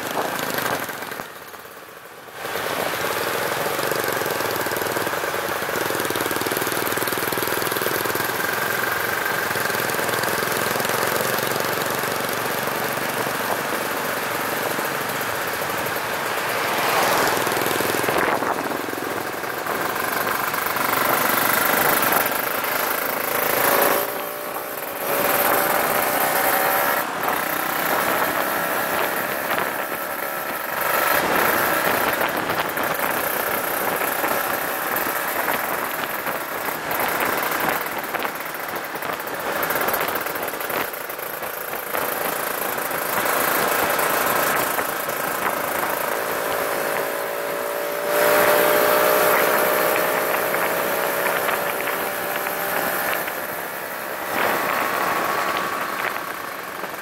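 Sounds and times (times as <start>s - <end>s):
motorcycle engine running: 0.0s - 57.0s
road noise: 0.0s - 57.0s
wind noise: 16.7s - 22.4s, 26.6s - 42.4s, 48.1s - 57.0s.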